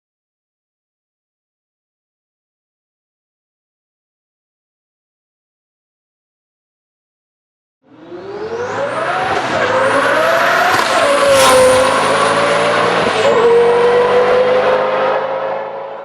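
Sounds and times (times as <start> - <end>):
sports car engine accelerating: 7.8 - 16.0.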